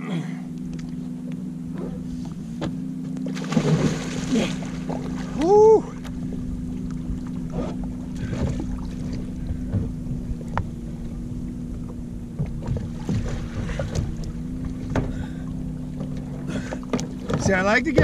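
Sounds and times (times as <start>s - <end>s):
steady low hum: 0.0s - 18.0s
water splashing and sloshing: 0.5s - 18.0s.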